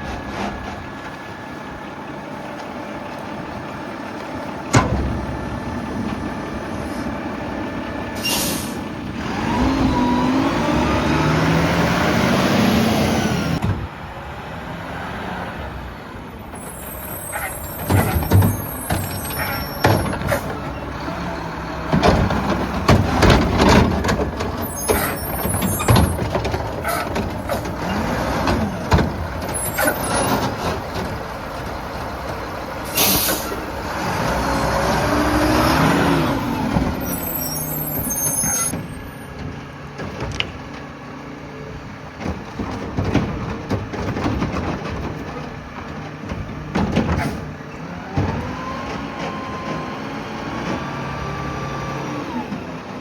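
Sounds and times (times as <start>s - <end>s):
diesel engine running: 0.0s - 53.0s
air brake hiss: 8.2s - 8.9s, 32.8s - 33.6s.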